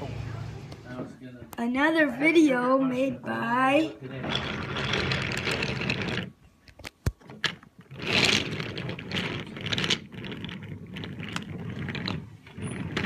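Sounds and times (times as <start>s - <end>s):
toy train cars rolling: 4.1s - 6.3s, 7.2s - 13.0s.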